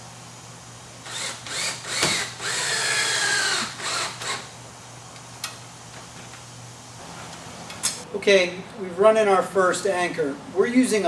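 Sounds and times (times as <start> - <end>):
power drill whining: 1.1 - 4.5.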